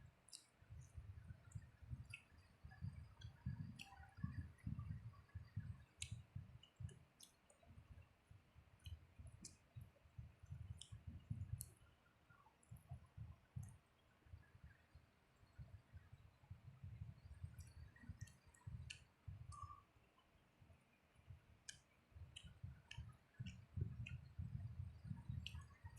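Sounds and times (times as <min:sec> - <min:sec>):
wet mouth clicks and lip smacks: 0:03.2 - 0:07.6.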